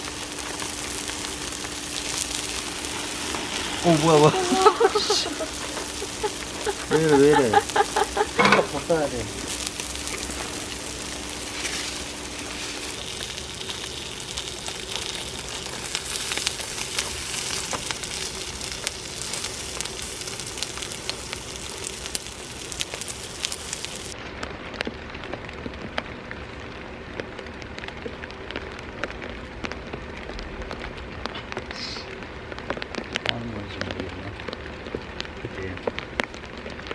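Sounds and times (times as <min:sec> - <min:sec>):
rain falling: 0:00.0 - 0:36.9.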